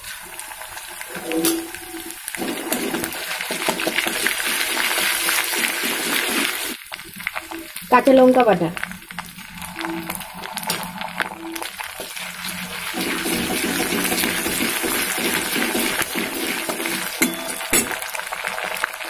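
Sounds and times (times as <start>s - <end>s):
onions sizzling in hot oil: 0.0s - 19.0s
spatula scraping a pan: 1.1s - 4.3s.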